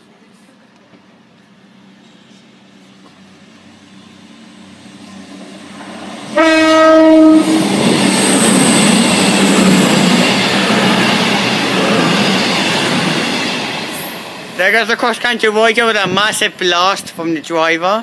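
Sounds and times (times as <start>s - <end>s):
train rushing past: 0.3s - 18.0s
train horn blast: 6.3s - 7.7s.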